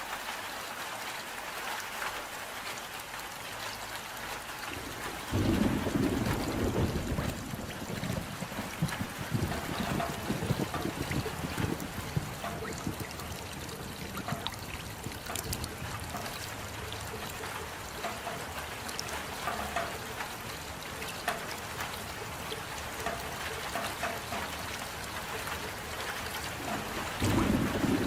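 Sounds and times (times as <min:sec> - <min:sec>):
raindrops ticking and splashing: 0:00.0 - 0:28.0
steady rain hiss: 0:00.0 - 0:28.0.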